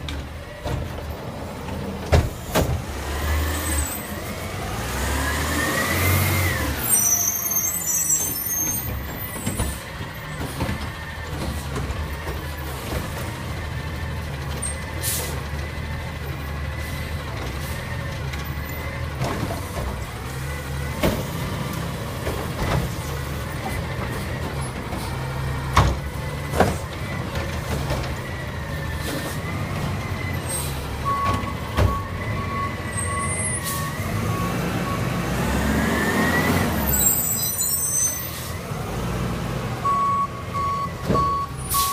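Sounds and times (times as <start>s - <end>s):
knocks and clanks: 0.0s - 2.9s, 8.9s - 13.5s, 17.4s - 20.2s, 20.8s - 30.0s
garbage truck engine rumble: 0.0s - 41.9s.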